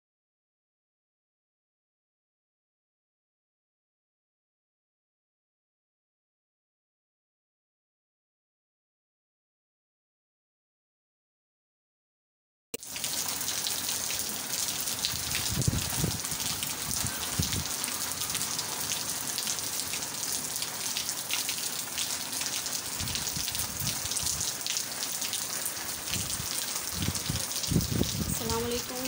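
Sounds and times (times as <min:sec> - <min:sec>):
heavy rain on concrete: 0:12.8 - 0:29.0.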